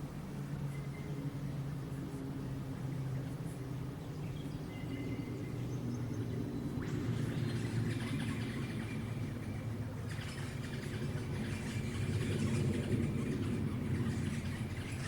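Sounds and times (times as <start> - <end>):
birds whistling: 4.0 - 15.0.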